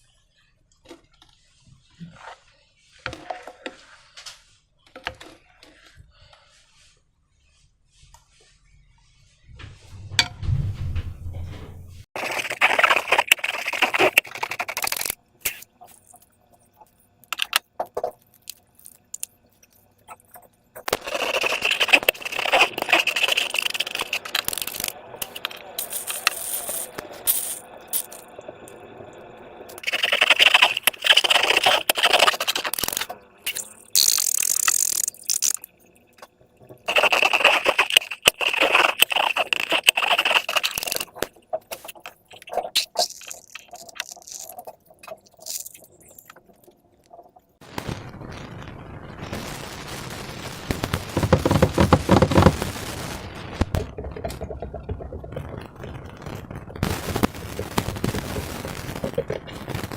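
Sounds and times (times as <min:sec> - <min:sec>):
slime and balloons being handled: 0:36.9 - 0:44.7, 0:51.1 - 0:52.6.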